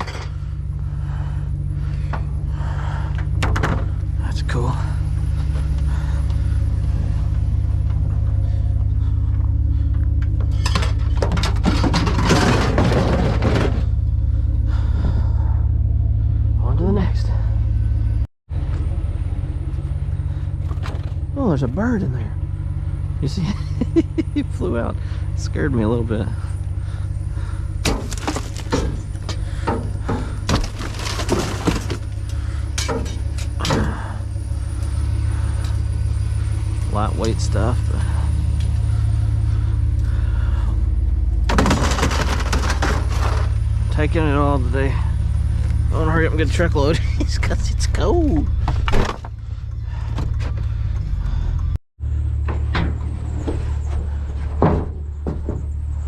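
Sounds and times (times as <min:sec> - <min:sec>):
truck engine droning: 0:00.0 - 0:56.0
junk knocking and rattling: 0:01.7 - 0:15.4, 0:26.5 - 0:35.2, 0:41.3 - 0:44.0, 0:48.4 - 0:51.4, 0:52.2 - 0:56.0.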